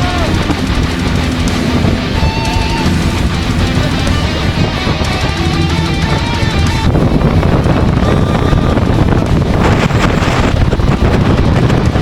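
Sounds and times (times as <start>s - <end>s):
background music: 0.0s - 8.7s
wind buffeting microphone: 0.0s - 12.0s.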